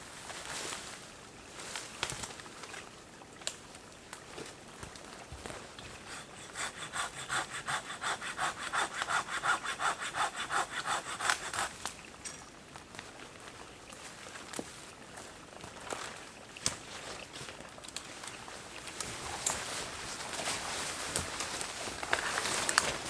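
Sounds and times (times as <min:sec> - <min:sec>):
hand saw cutting firewood: 0:06.0 - 0:11.9.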